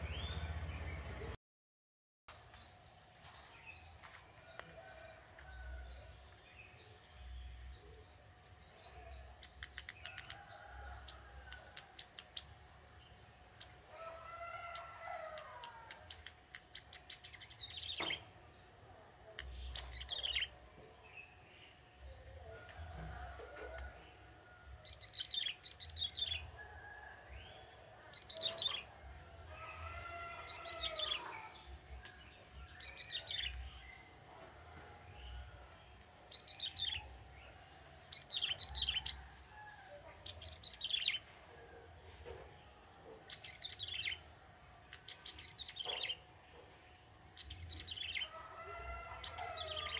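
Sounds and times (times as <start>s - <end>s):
bird chirping: 0.0s - 1.3s, 15.3s - 18.3s, 19.2s - 23.2s, 24.8s - 26.6s, 30.5s - 34.2s, 35.1s - 39.2s, 40.0s - 41.7s, 43.0s - 49.9s.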